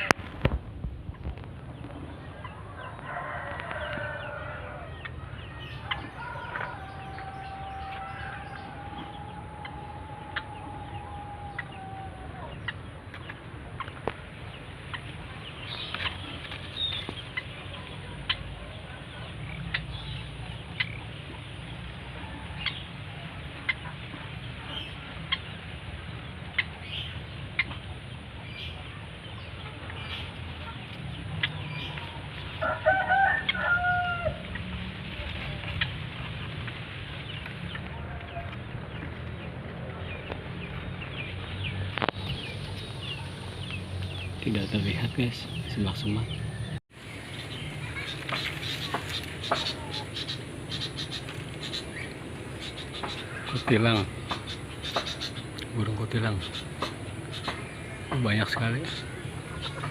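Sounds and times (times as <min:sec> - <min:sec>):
steady low rumble: 0:00.0 - 0:32.6, 0:34.4 - 0:59.9
rooster crowing: 0:02.3 - 0:12.8, 0:21.9 - 0:23.2, 0:31.7 - 0:34.5.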